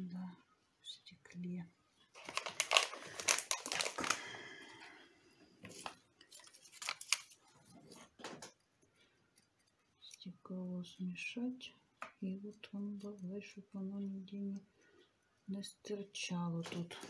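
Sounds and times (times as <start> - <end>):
small hard objects clicking: 2.2 - 4.2, 5.7 - 7.4.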